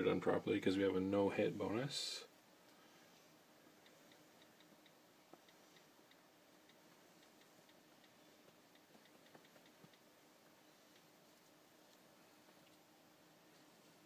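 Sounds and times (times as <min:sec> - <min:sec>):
faint light ticks: 0:03.7 - 0:12.8.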